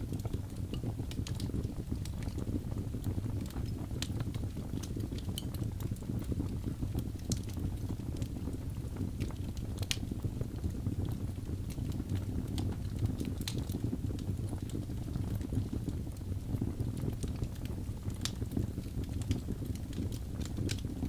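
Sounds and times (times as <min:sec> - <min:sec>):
wood logs burning and crackling: 0:00.0 - 0:21.0.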